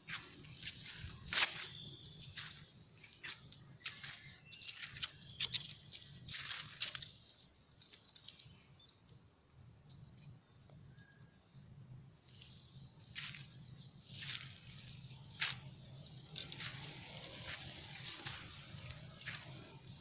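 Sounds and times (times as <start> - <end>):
rustling and scuffing: 0.0 - 7.3, 13.1 - 20.0
high-pitched insect chirring: 0.0 - 11.4.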